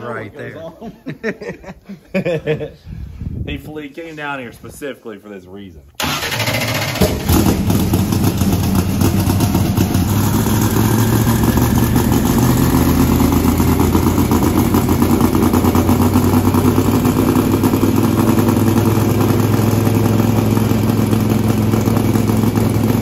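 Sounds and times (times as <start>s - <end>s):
car engine idling: 6.0s - 23.0s.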